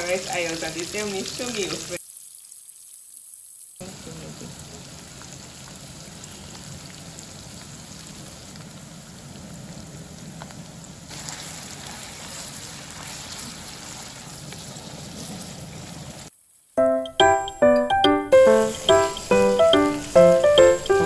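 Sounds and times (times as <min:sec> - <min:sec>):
steady rain: 0:03.8 - 0:15.4.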